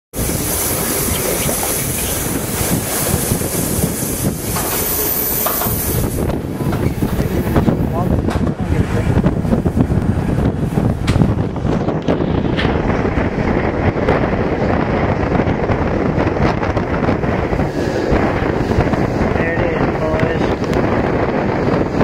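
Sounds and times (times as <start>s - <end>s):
train wheels rumbling on rails: 0.1s - 22.0s
wind buffeting microphone: 0.1s - 22.0s.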